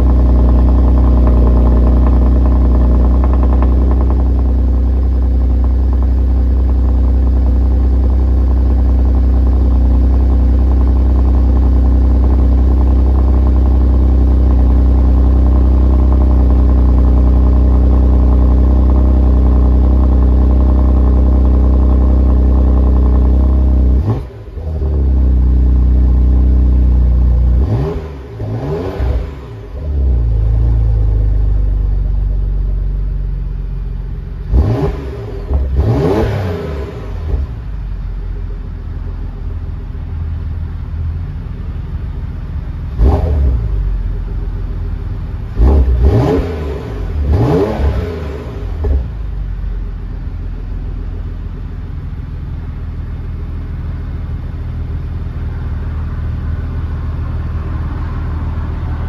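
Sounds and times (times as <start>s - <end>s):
car engine revving and idling: 0.0s - 59.0s.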